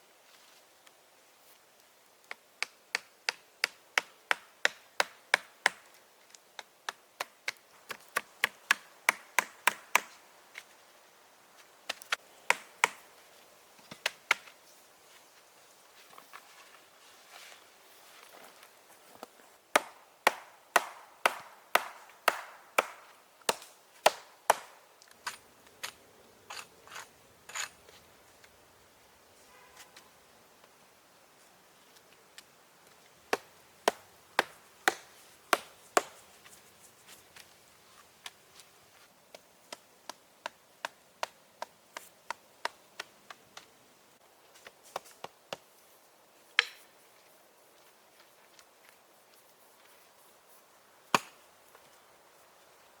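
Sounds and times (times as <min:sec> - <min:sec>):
wood being chopped: 0:02.6 - 0:05.8, 0:06.6 - 0:10.2, 0:11.9 - 0:13.0, 0:19.7 - 0:24.8, 0:33.3 - 0:36.2, 0:46.6 - 0:46.8, 0:51.1 - 0:51.4.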